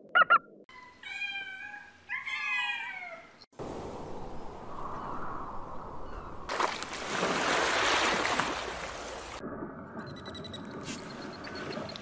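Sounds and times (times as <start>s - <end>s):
sea water splashing and rushing: 6.5s - 9.5s.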